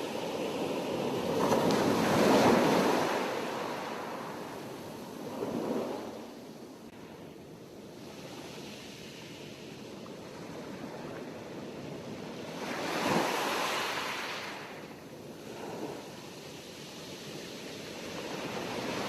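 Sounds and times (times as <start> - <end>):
sea waves breaking on shore: 0.0 - 6.4, 12.3 - 14.8.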